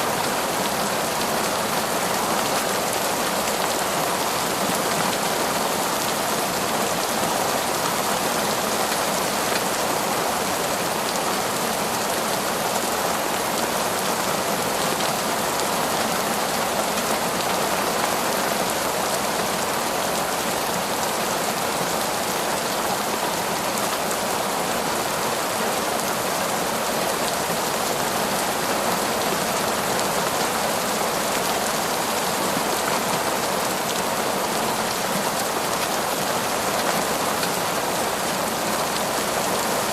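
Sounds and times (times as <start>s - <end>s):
heavy rain through trees: 0.0s - 39.9s.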